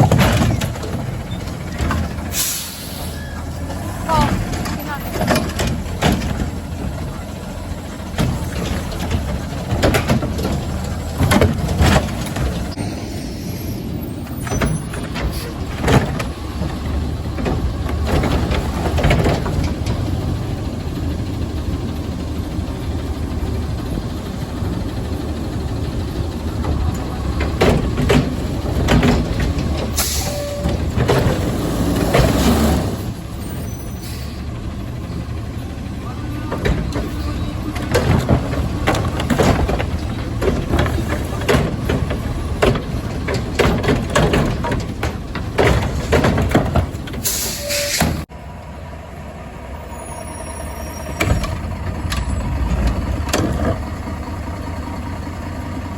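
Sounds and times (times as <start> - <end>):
metallic knocks and bangs: 0.0 - 2.3, 8.0 - 12.8, 26.3 - 33.2, 36.5 - 47.2
garbage truck diesel engine: 0.0 - 55.9
air brake hiss: 2.3 - 3.3, 47.2 - 48.2.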